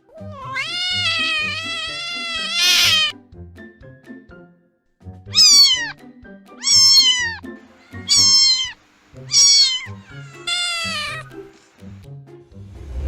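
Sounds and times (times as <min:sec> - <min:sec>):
kittens meowing: 0:00.0 - 0:03.1, 0:05.3 - 0:06.0, 0:06.6 - 0:11.5
soft background music: 0:00.0 - 0:13.0.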